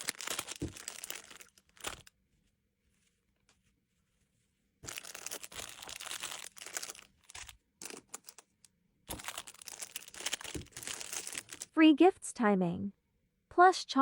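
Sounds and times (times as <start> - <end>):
plastic packaging crinkling: 0.0 - 2.2, 4.8 - 11.7.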